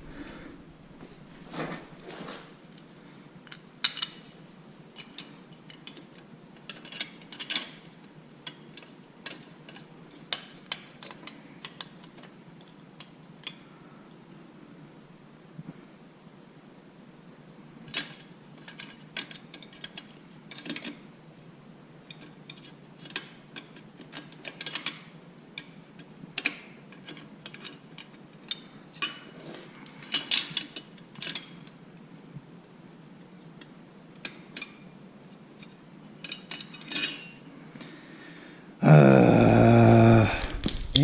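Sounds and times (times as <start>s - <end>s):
hand tools clicking and clinking: 40.3s - 41.0s.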